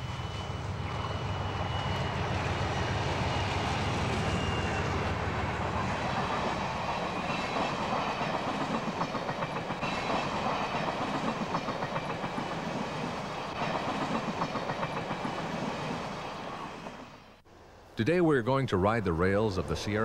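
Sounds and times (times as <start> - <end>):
train wheels clicking over rail joints: 3.4 - 17.0.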